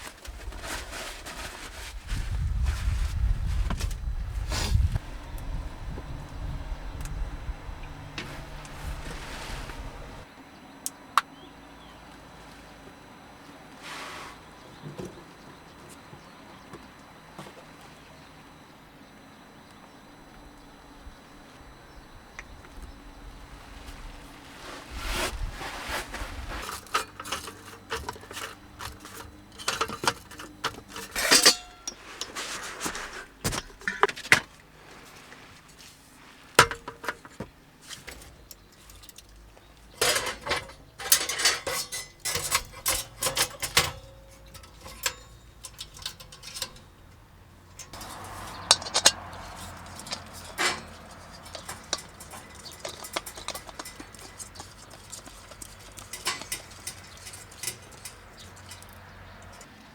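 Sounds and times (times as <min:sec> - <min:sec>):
metal objects clinking and clattering: 0:26.6 - 0:34.4, 0:40.0 - 0:47.0, 0:47.8 - 0:59.7.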